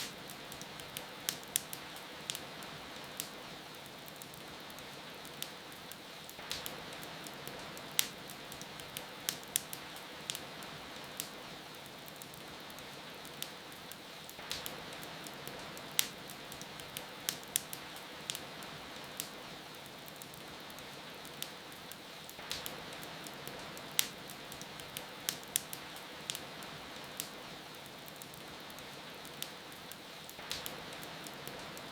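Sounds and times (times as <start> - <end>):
rain hissing: 0.0 - 3.6
rain hiss: 0.0 - 31.9
wood fire crackling: 0.0 - 31.9.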